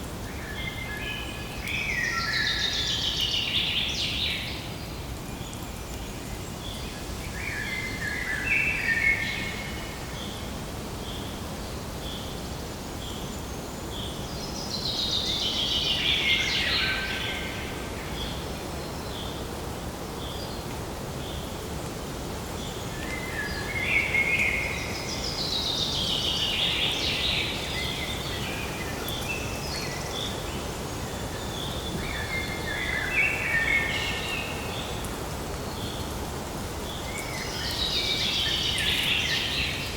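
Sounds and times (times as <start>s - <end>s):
background hiss: 0.0s - 39.9s
falling warbled birdsong: 22.5s - 39.9s.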